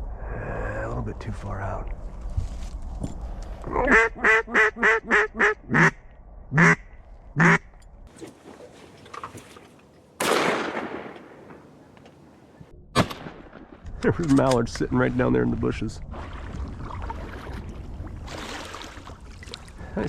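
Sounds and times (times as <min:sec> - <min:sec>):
mallard quacking: 0:03.8 - 0:06.0, 0:06.6 - 0:06.8, 0:07.4 - 0:07.7.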